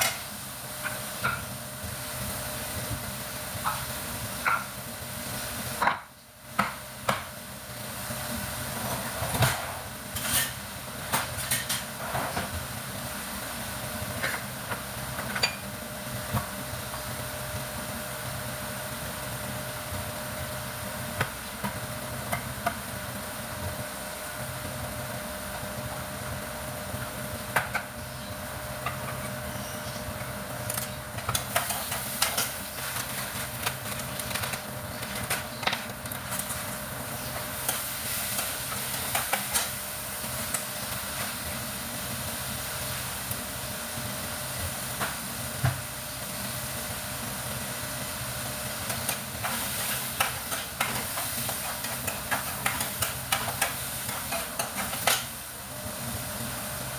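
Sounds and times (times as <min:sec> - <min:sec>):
food sizzling in a frying pan: 0:00.0 - 0:56.9.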